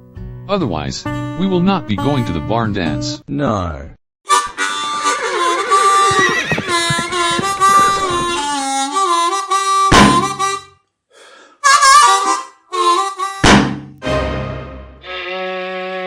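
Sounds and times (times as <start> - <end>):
harmonica melody: 1.0 - 3.2, 4.3 - 10.7, 11.6 - 16.0
low thumps: 6.0 - 8.8, 9.9 - 10.6, 13.4 - 14.0.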